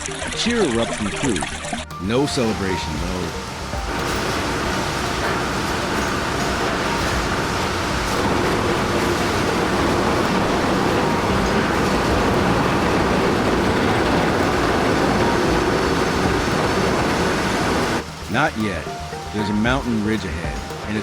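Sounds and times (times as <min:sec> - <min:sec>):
heavy vehicle rumbling: 0:01.9 - 0:21.0.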